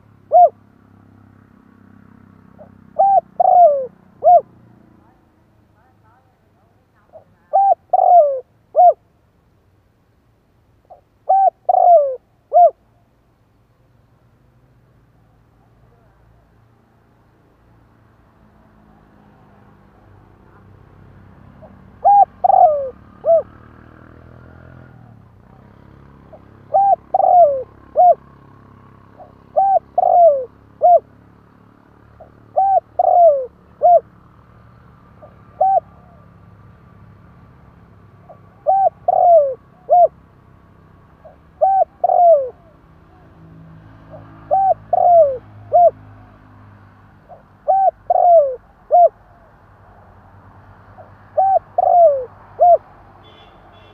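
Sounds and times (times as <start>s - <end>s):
dove cooing: 0.0s - 0.6s, 2.6s - 4.6s, 7.0s - 9.0s, 10.9s - 12.8s, 21.6s - 23.6s, 26.3s - 28.3s, 29.1s - 31.2s, 32.2s - 34.1s, 35.2s - 36.5s, 38.2s - 40.2s, 41.2s - 43.4s, 44.1s - 46.3s, 47.3s - 49.6s, 51.0s - 53.0s.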